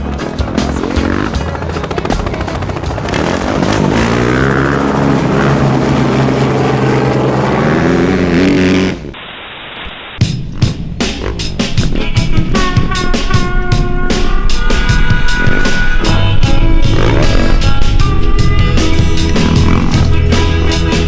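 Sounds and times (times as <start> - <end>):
background music: 0.0 - 9.1, 10.2 - 21.0
motorbike engine at high revs: 0.8 - 9.2, 15.4 - 18.1, 18.7 - 21.0.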